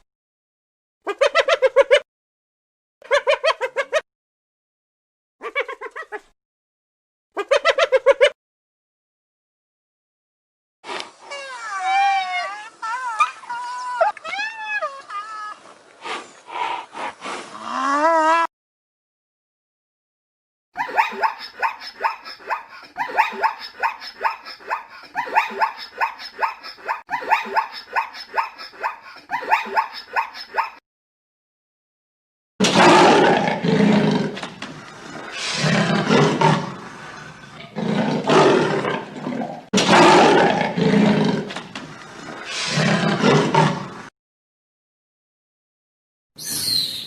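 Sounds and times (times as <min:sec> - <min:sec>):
big cat roaring: 0:32.7 - 0:34.4, 0:35.0 - 0:41.6, 0:42.2 - 0:44.1.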